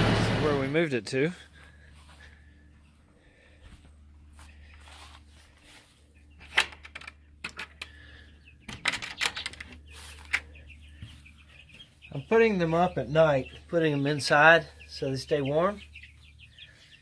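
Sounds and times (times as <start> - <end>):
steady low hum: 0.0 - 17.0
sharp clicks and rattles: 6.4 - 8.0, 8.7 - 10.4.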